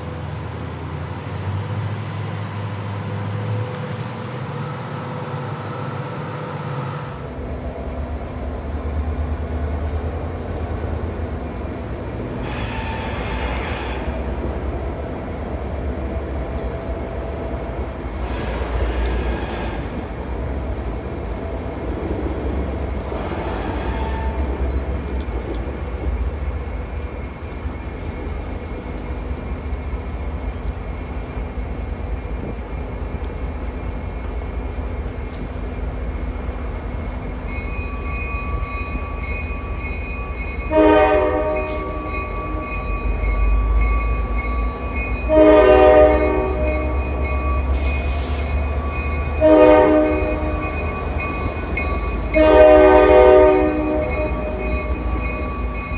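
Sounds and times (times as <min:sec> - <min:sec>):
locomotive engine rumble: 0:00.0 - 0:55.9
locomotive bell ringing: 0:07.1 - 0:55.9
locomotive horn blasts: 0:40.7 - 0:42.9, 0:45.2 - 0:48.1, 0:49.2 - 0:55.4.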